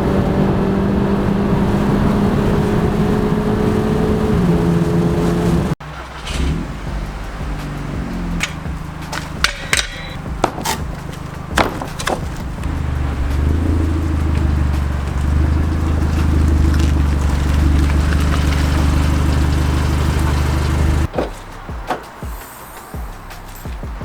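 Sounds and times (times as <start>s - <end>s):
car engine droning: 0.0s - 21.9s
sharp knocks or clicks: 8.4s - 12.8s.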